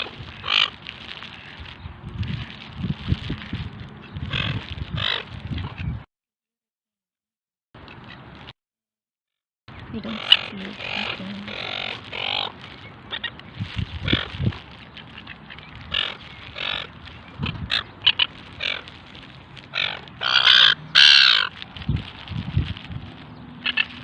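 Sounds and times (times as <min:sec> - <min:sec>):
ducks quacking: 0:10.0 - 0:14.5, 0:19.7 - 0:21.6
seagulls squawking: 0:10.0 - 0:21.6, 0:23.3 - 0:24.0.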